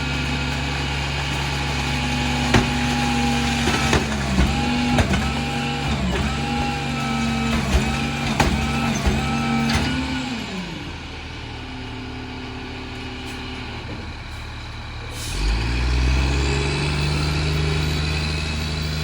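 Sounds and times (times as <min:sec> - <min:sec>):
garbage truck diesel engine: 0:00.0 - 0:19.0.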